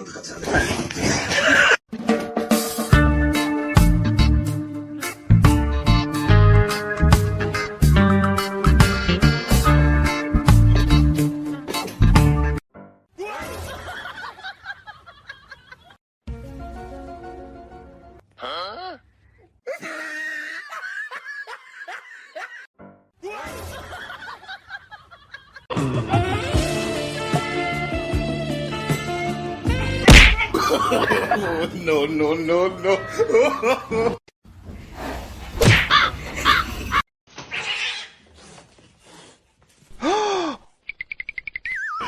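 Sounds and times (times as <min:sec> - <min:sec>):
music: 0:01.9 - 0:13.0, 0:16.2 - 0:18.2, 0:25.7 - 0:30.7
animal harsh calls: 0:35.7 - 0:38.3.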